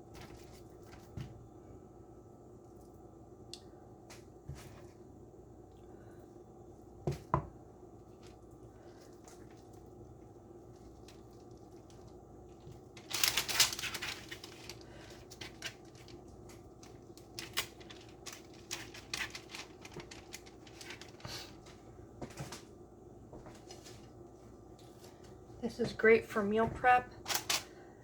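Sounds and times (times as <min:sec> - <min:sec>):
wrappers rustling: 0:10.6 - 0:22.7, 0:26.9 - 0:27.8.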